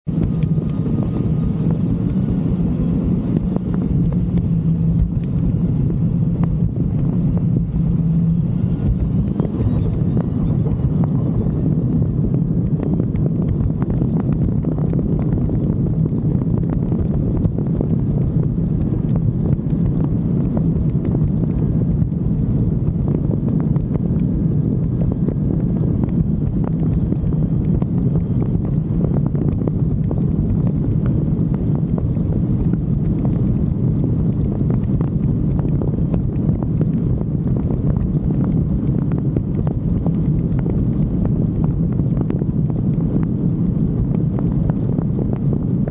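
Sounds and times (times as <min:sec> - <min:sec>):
jet ski engine running: 0:00.0 - 0:16.1
wind buffeting microphone: 0:00.0 - 0:45.9.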